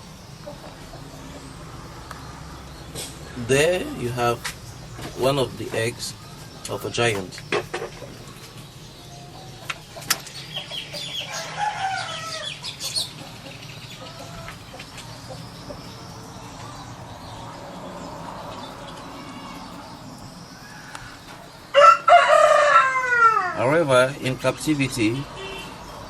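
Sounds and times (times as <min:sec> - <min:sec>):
chickens clucking: 0:00.0 - 0:26.0
rooster crowing: 0:10.8 - 0:12.8, 0:18.8 - 0:23.9.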